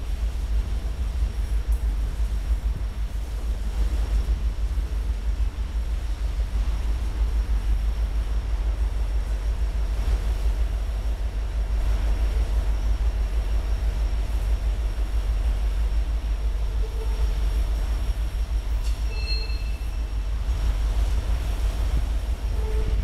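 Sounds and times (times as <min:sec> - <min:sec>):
freight train cars rumbling past: 0:00.0 - 0:23.0
high-pitched wheel squeal: 0:18.8 - 0:20.1.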